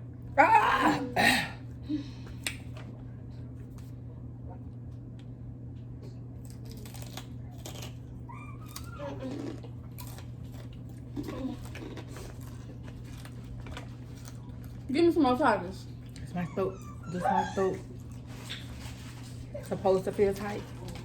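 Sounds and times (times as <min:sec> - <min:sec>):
low room hum: 0:00.0 - 0:21.0
chips crunching: 0:06.4 - 0:14.9.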